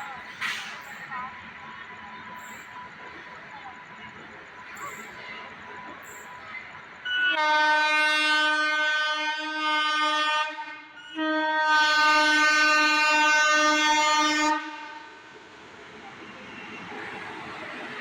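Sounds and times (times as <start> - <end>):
locomotive horn blasts: 7.1 - 15.2.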